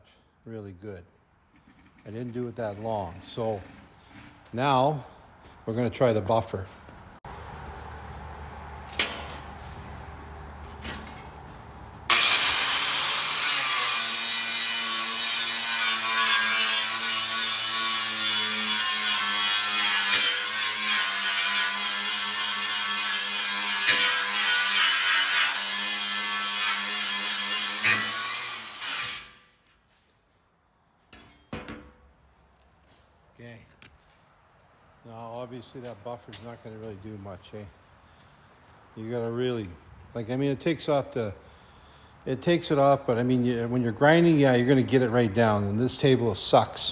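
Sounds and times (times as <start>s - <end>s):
wire wheel grinder scraping rust: 1.4s - 4.6s, 12.1s - 29.5s.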